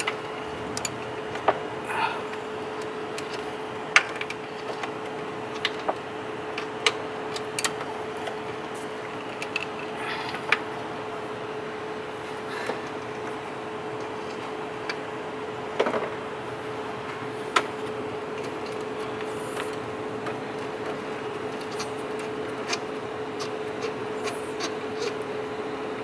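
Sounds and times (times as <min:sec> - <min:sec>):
steady hum: 0:00.0 - 0:26.0
ratchet and spanner clicking: 0:21.5 - 0:25.3.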